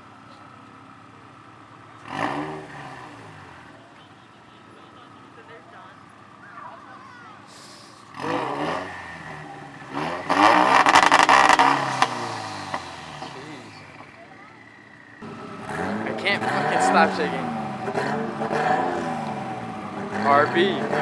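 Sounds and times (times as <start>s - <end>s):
car engine revving: 0.0s - 3.9s, 7.5s - 21.0s
exhaust banging and crackling: 7.5s - 21.0s.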